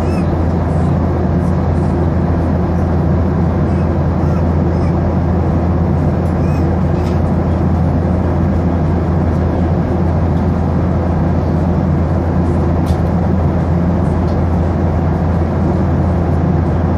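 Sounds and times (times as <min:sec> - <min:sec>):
airliner cabin engine drone: 0:00.0 - 0:16.9.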